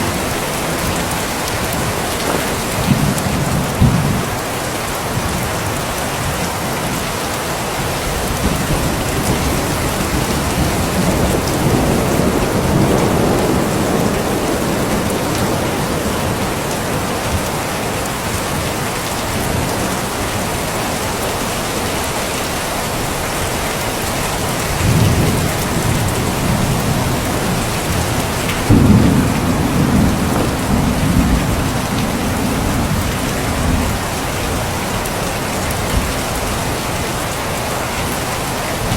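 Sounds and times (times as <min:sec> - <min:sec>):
thunder rumbling: 0:00.0 - 0:05.7, 0:07.8 - 0:20.5, 0:24.4 - 0:36.8
heavy rain: 0:00.0 - 0:38.9
thunder clap: 0:08.2 - 0:17.7, 0:24.7 - 0:34.8.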